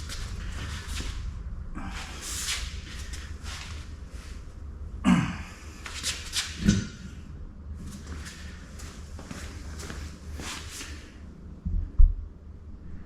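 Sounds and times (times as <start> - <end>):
steady low hum: 0.0 - 13.0
man breathing hard: 1.8 - 3.4.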